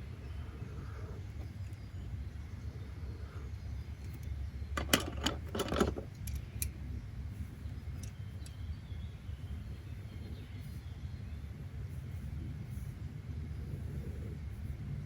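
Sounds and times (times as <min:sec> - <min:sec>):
low rumble of background noise: 0:00.0 - 0:15.0
small clicks and rattles: 0:04.0 - 0:06.8.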